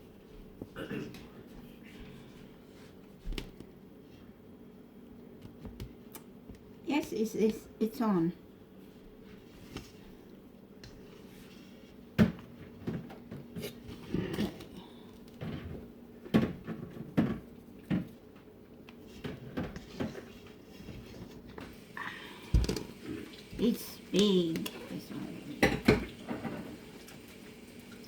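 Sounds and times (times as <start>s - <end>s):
faint steady hum: 0.0s - 28.0s
kitchen utensils clattering: 25.5s - 26.8s.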